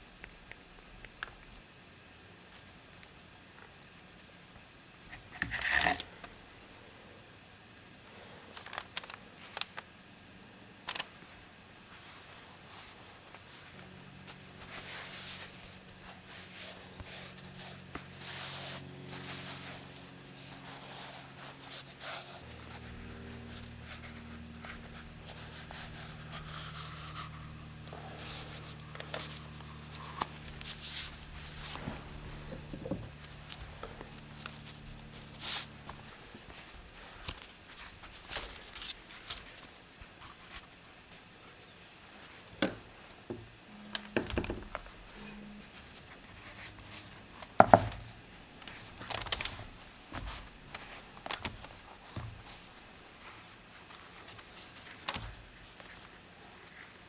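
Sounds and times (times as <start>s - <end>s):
short rubbing strokes: 22.2s - 37.1s.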